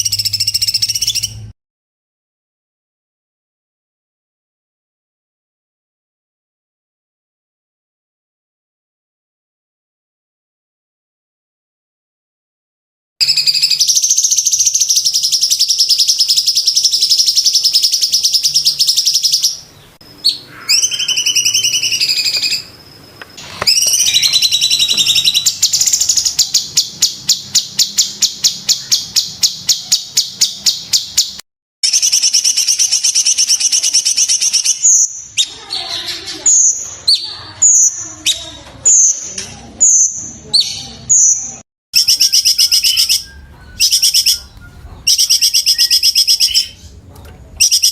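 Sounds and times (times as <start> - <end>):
songbird trilling and calling: 0.0 - 1.5, 13.2 - 47.9.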